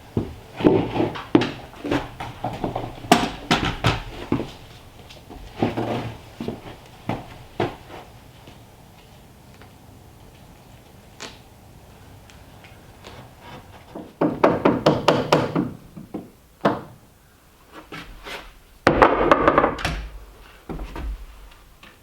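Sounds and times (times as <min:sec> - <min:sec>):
wooden knocks and thuds: 0:00.1 - 0:07.9, 0:13.5 - 0:17.0, 0:18.8 - 0:22.0.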